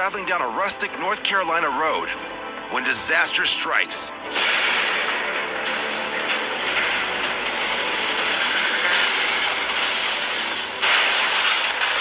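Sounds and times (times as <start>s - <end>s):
rattling road noise: 4.3s - 10.8s.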